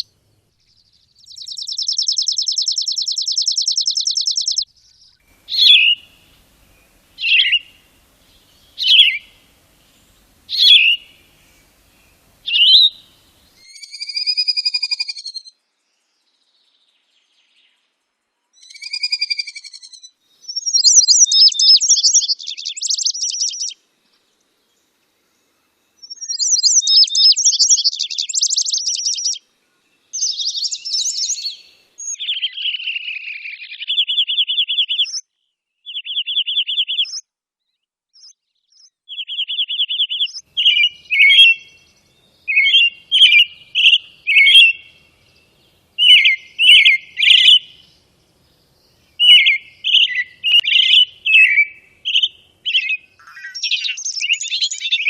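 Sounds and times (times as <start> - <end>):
bird chirped phrases: 0.8 - 14.2, 26.0 - 37.2, 38.2 - 55.0
songbird trilled phrases: 0.8 - 15.5, 18.6 - 23.8, 26.0 - 29.4, 30.1 - 37.2, 38.2 - 55.0.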